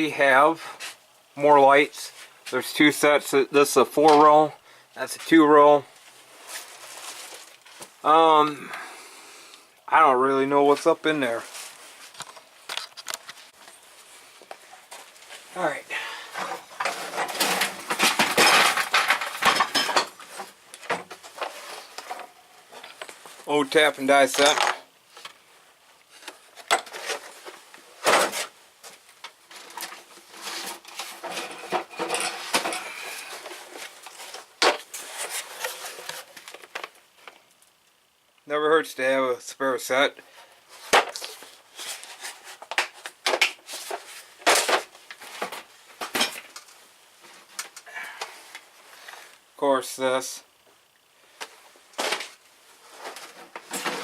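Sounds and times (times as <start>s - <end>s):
tools scraping and knocking: 16.4s - 23.0s, 29.6s - 33.0s
metal tools clinking in drawer: 16.8s - 20.2s.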